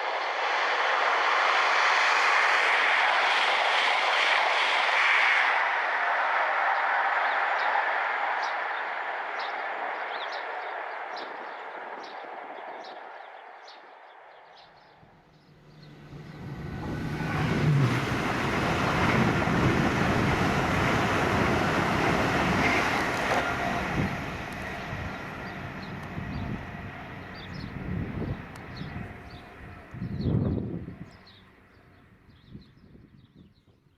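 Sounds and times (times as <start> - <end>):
train passing: 0.0 - 32.4
train passing with low rumble: 0.0 - 33.0.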